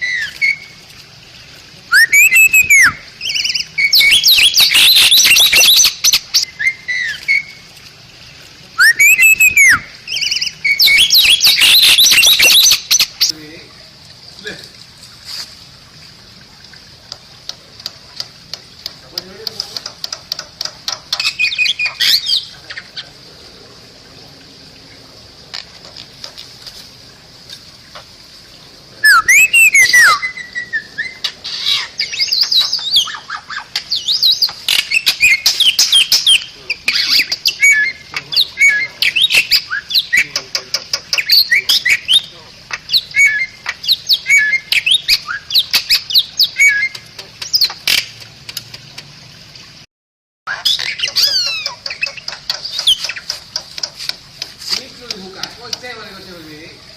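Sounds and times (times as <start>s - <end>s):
bird whistles chirps and squawks: 0.0s - 0.8s, 1.9s - 7.6s, 8.8s - 13.3s, 21.1s - 23.1s, 29.0s - 40.4s, 41.1s - 48.1s, 50.5s - 53.4s.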